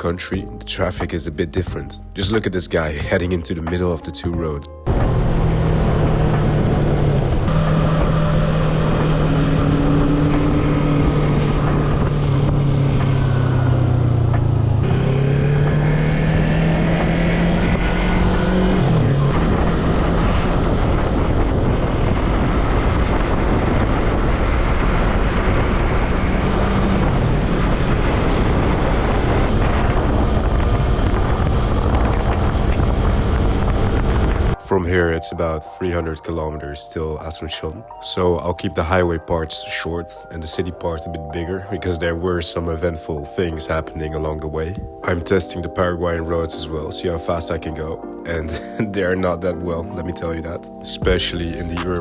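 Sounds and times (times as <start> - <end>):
motorcycle engine running: 4.9 - 34.6
wind noise: 4.9 - 34.6.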